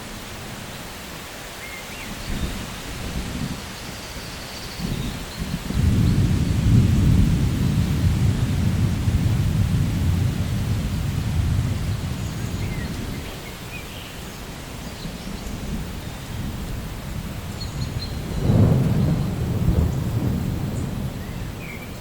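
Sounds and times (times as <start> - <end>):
steady rain: 0.0 - 22.0
thunder rolling: 4.8 - 13.3, 15.6 - 22.0.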